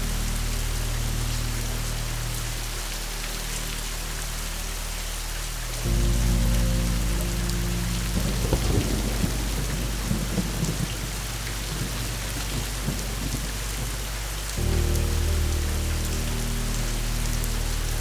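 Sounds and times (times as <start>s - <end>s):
steady rain falling: 0.0s - 18.0s
thunder rumbling: 5.9s - 18.0s.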